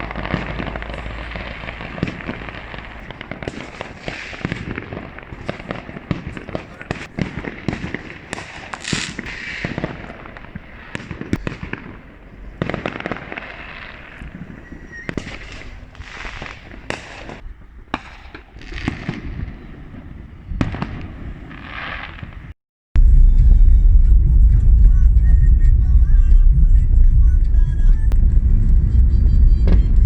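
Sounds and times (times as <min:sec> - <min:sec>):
fireworks hissing: 0:00.0 - 0:19.5
fireworks bangs and crackles: 0:00.0 - 0:30.0.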